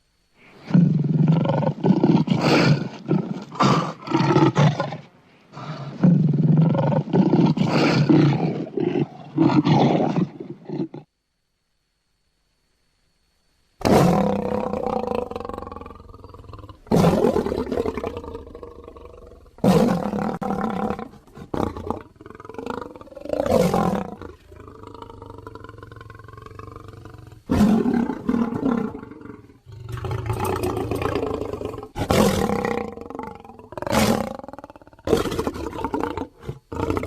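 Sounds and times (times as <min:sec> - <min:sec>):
lion roaring and growling: 0:13.8 - 0:37.0.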